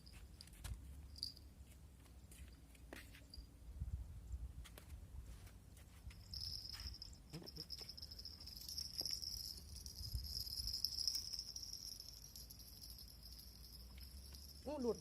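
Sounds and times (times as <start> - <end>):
wind rumble on microphone: 3.6 - 5.4
high-pitched insect trill: 6.2 - 15.0.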